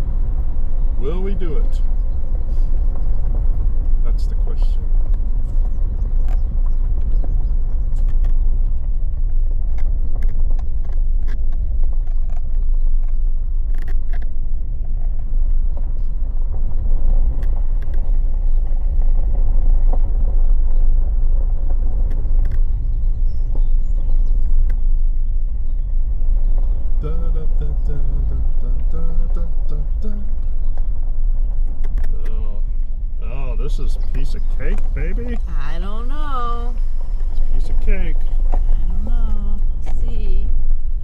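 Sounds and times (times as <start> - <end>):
low rumble of engine and tyres: 0.0 - 41.0.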